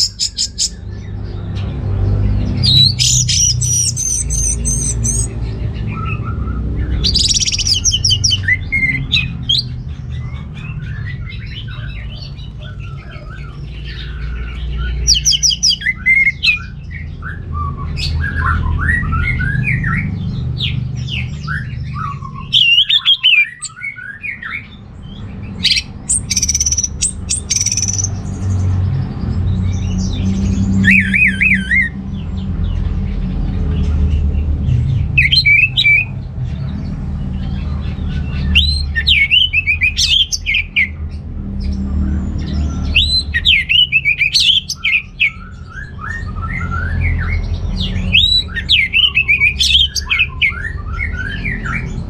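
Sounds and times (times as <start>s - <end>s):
thrush singing: 0.0s - 9.8s, 10.4s - 16.9s, 20.7s - 24.7s, 37.6s - 41.0s, 42.4s - 52.0s.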